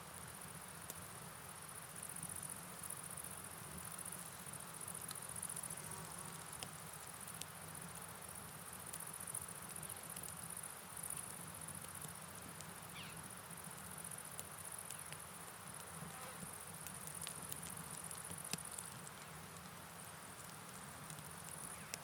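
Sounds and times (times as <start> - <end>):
soft rain patter: 0.0 - 22.0
insects chirring: 1.5 - 22.0
sharp drip clicks: 16.8 - 19.7, 20.4 - 22.0.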